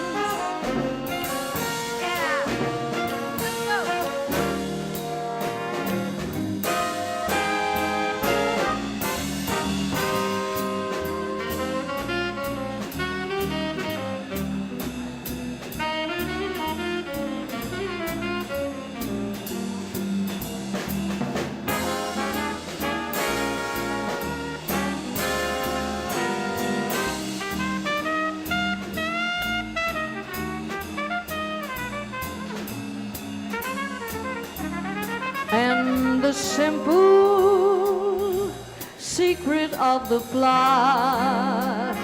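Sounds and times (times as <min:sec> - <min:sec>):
swing band playing: 0:00.0 - 0:42.0.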